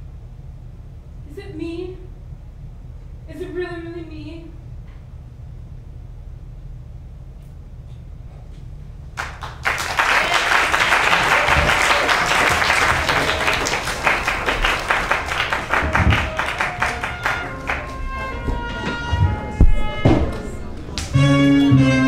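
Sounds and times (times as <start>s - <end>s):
audience applause: 9.2s - 19.1s
faint music: 9.9s - 22.0s.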